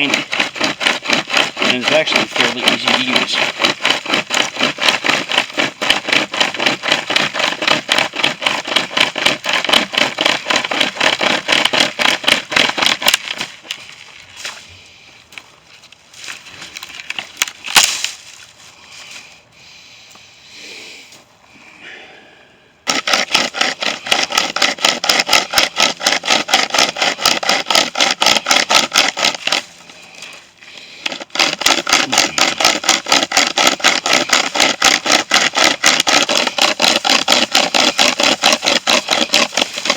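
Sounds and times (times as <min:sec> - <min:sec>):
hand chainsaw sawing tree limb: 0:00.0 - 0:15.0, 0:16.1 - 0:19.3, 0:22.8 - 0:39.9
sharp crack: 0:17.4 - 0:18.2.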